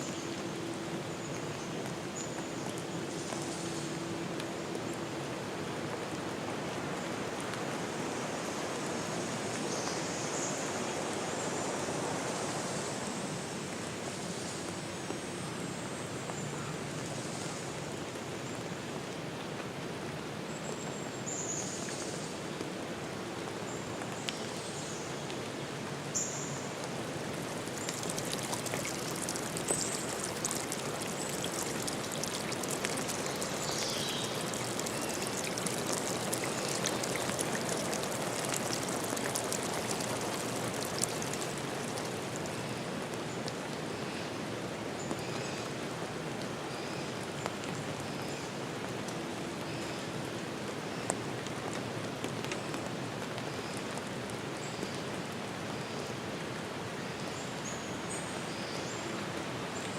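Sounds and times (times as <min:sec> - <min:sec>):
hiss of water: 0:07.5 - 0:14.9, 0:26.1 - 0:43.0
patter of water drops: 0:27.4 - 0:42.8.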